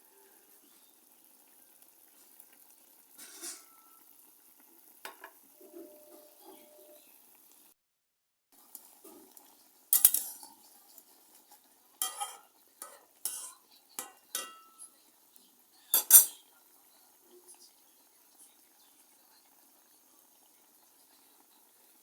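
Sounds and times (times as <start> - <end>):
metal spoon scraping a pot: 3.2 - 4.0, 10.0 - 10.6, 12.0 - 14.9, 15.9 - 16.5.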